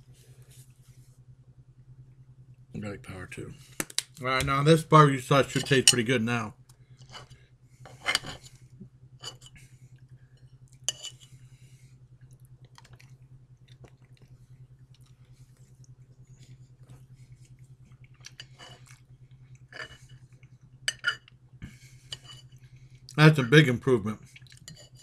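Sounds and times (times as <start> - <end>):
steady low hum: 0.0 - 25.0
fork scraping ceramic plate: 5.4 - 6.1, 7.0 - 8.6, 9.2 - 9.6, 10.9 - 11.3, 18.3 - 19.0, 19.7 - 20.2, 20.9 - 21.2, 22.1 - 22.6, 24.6 - 25.0
person chewing food: 12.1 - 20.7, 24.2 - 24.7.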